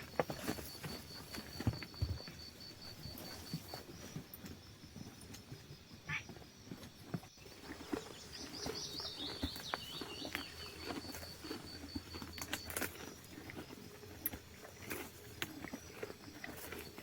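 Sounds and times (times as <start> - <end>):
small bird singing: 7.4 - 12.3.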